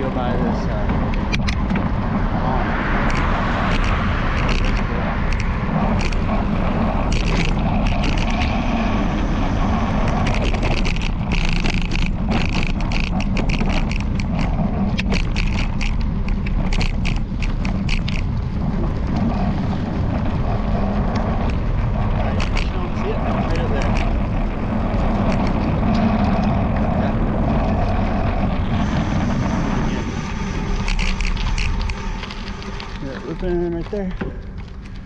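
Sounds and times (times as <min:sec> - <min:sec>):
road noise: 0:00.0 - 0:35.0
wind rumble on microphone: 0:00.0 - 0:35.0
camera mount rattling clicks: 0:10.2 - 0:18.3.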